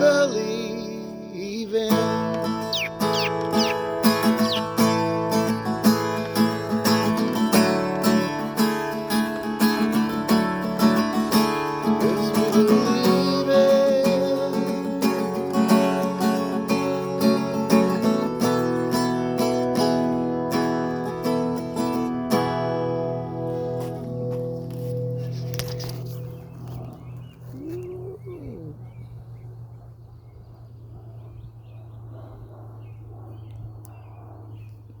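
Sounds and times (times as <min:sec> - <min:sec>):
acoustic guitar strumming: 0:00.0 - 0:26.5
small birds chirping: 0:01.9 - 0:06.4, 0:25.0 - 0:35.0
lower rising and falling bird call: 0:02.4 - 0:05.4, 0:26.2 - 0:29.4.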